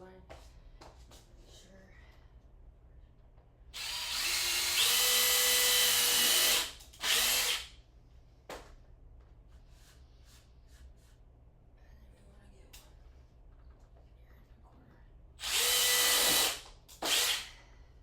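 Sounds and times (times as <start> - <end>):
power tool motor whining: 15.4 - 17.5.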